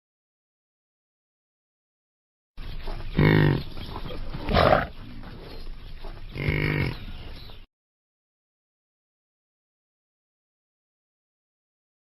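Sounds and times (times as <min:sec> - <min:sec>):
animal calls: 0:02.8 - 0:07.5
rough noisy animal call: 0:02.8 - 0:07.6.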